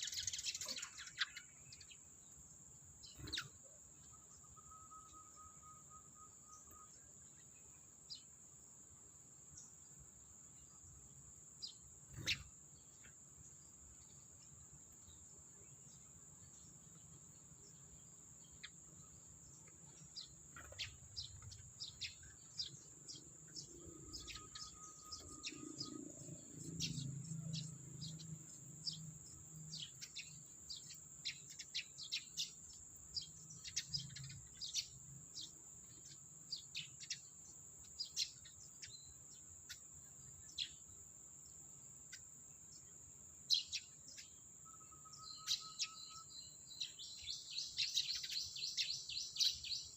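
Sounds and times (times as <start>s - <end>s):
sparrows chirping: 0.0s - 49.9s
high insect whine: 11.6s - 37.3s, 38.0s - 49.9s.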